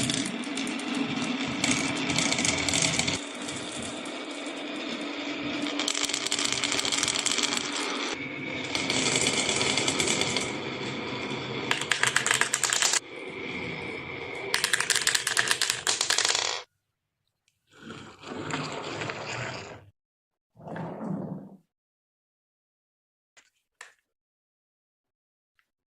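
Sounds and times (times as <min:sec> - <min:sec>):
marbles rolling down wooden track: 0:00.0 - 0:13.0, 0:14.4 - 0:16.7.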